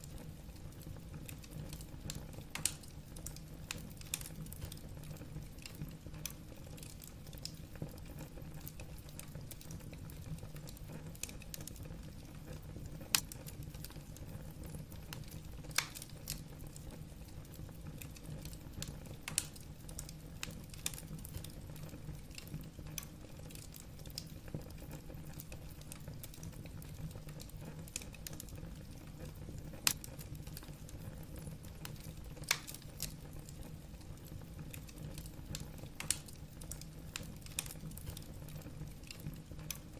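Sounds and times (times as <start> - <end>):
logs crackling in a fire: 0.0 - 39.9
sharp fire pops: 2.5 - 3.4, 13.0 - 13.5, 19.2 - 20.2, 29.7 - 30.2, 31.9 - 33.2, 34.7 - 38.3.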